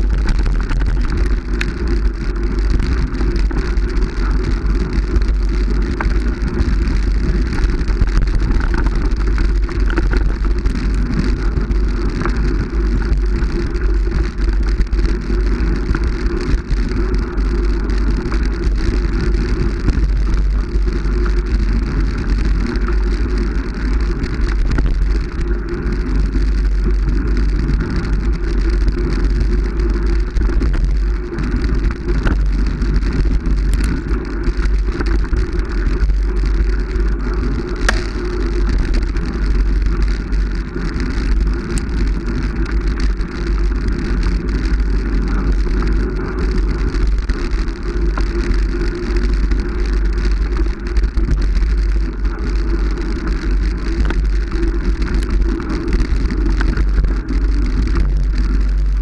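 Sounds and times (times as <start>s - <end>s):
faint clicks: 33.7s - 34.2s.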